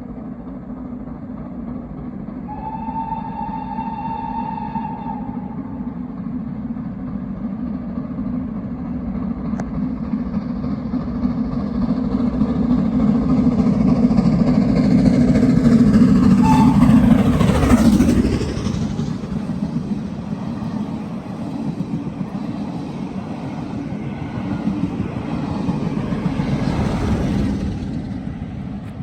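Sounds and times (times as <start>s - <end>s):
train engine and wheels rumbling: 0.0s - 29.0s
steam locomotive whistle: 2.5s - 6.0s, 16.2s - 18.0s.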